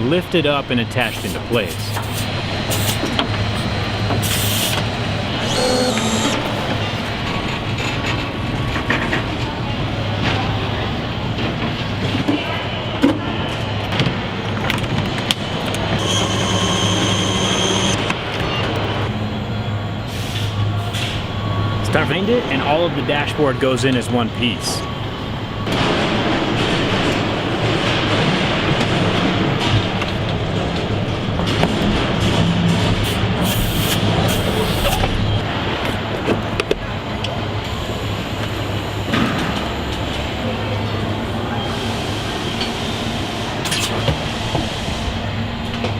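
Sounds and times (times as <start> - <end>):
machinery hum: 0.0 - 45.9
machinery hisses: 1.0 - 6.8, 33.0 - 35.1
high steady whine: 1.2 - 7.4, 15.9 - 18.2, 33.5 - 43.8.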